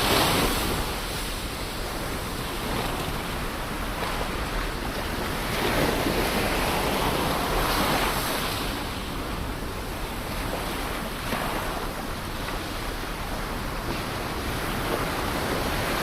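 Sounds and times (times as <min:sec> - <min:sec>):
ocean waves breaking: 0:00.0 - 0:16.0.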